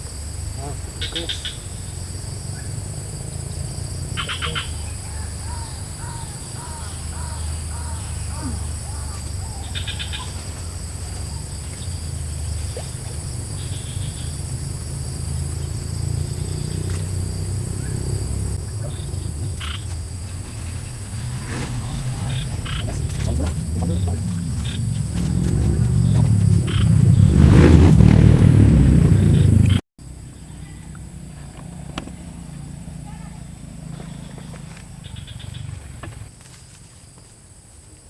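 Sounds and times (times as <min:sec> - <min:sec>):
bird or frog calls: 0:00.0 - 0:27.7, 0:33.6 - 0:36.3
insects droning: 0:00.0 - 0:38.0
rapid trills: 0:00.1 - 0:31.0
low rumble: 0:01.6 - 0:31.6.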